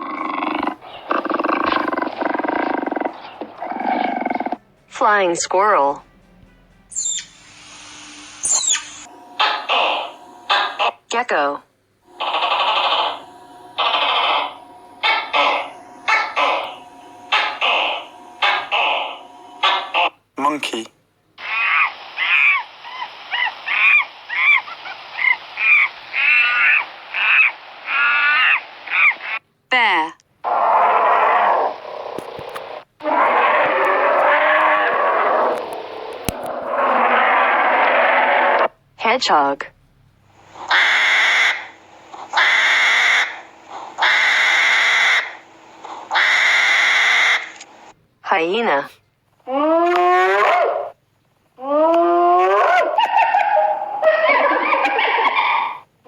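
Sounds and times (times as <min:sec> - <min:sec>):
hedgehog harsh noisy bursts: 0:00.0 - 0:04.6, 0:07.0 - 0:20.8, 0:21.4 - 0:29.4, 0:40.3 - 0:48.0
monkey calling: 0:00.0 - 0:04.6, 0:06.9 - 0:07.4, 0:08.4 - 0:11.0, 0:12.2 - 0:13.2, 0:13.8 - 0:20.2, 0:21.4 - 0:29.2, 0:40.6 - 0:43.4, 0:44.0 - 0:45.4, 0:46.1 - 0:47.6, 0:52.2 - 0:55.8
steady hiss: 0:07.2 - 0:11.0, 0:12.1 - 0:29.4.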